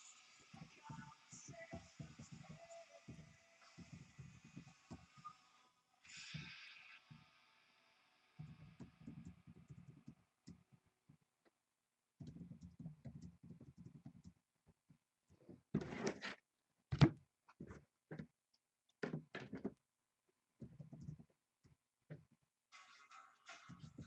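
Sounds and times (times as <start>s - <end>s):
rustling and shuffling at a table: 12.2s - 18.4s.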